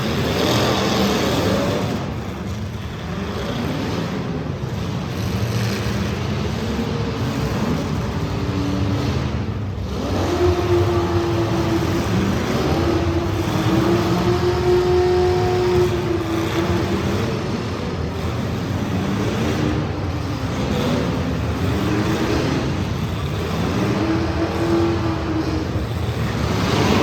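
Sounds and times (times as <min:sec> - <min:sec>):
race car engines revving: 0:00.0 - 0:27.0.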